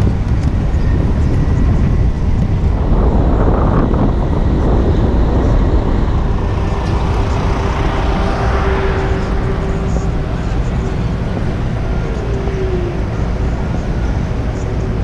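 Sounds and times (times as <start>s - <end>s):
city street traffic: 0.0s - 15.0s
steady hum: 0.0s - 15.0s
wind rumbling on microphone: 0.0s - 15.0s.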